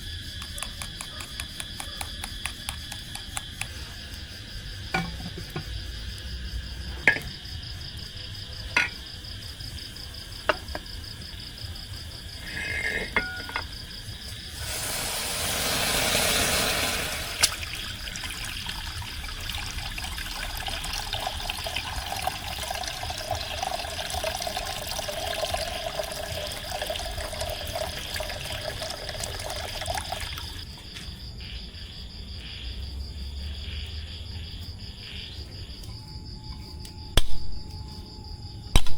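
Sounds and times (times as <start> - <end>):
insect trill: 0.0 - 38.9
water pouring into a vessel: 14.5 - 30.7.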